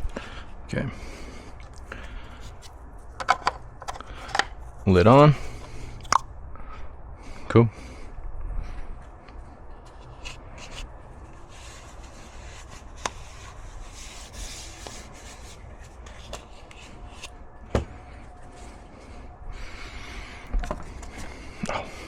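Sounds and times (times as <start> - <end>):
hands rubbing and scraping parts: 2.2 - 6.2, 9.8 - 17.4.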